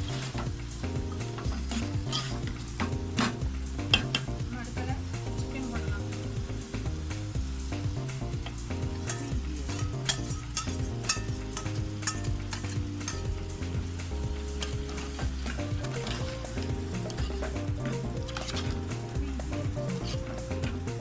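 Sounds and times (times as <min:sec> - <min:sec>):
background music with beat: 0:00.0 - 0:21.0
chicken sizzling in pot: 0:00.0 - 0:21.0
spoon stirring: 0:01.4 - 0:04.3, 0:08.4 - 0:13.4, 0:14.4 - 0:21.0.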